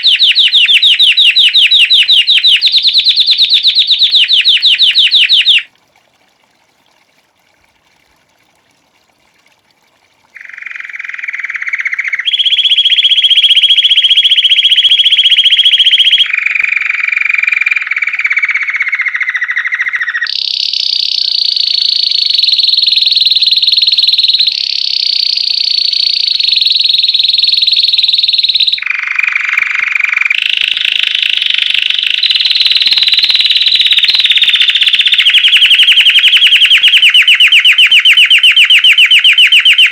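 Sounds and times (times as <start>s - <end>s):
canary singing in trills: 0.0s - 5.7s, 10.4s - 22.0s, 26.3s - 39.9s.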